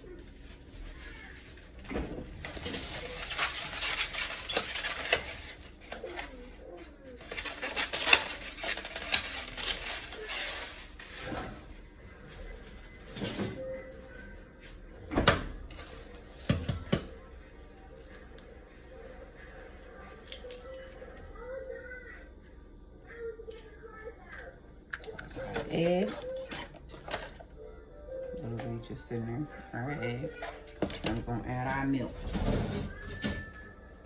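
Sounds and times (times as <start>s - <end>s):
fork scraping mixing bowl: 25.0s - 27.4s.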